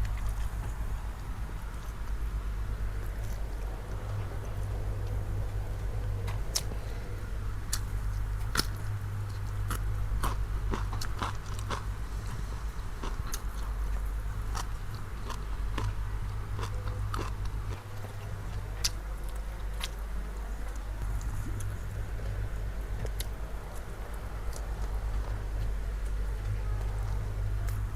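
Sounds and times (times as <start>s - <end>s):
steady low hum: 0.0s - 27.9s
person chewing crunchy food: 7.6s - 20.0s.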